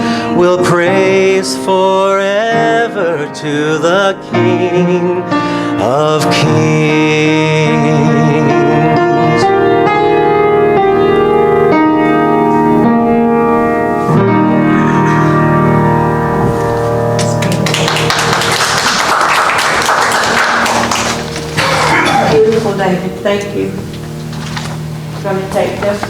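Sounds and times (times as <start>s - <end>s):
keyboard chords: 0.0s - 26.0s
audience applause: 17.1s - 22.0s.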